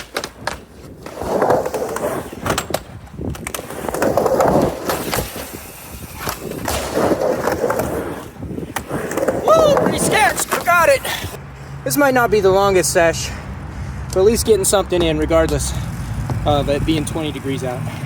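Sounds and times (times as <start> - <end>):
skateboard wheels rolling on ramp: 0.0 - 11.4.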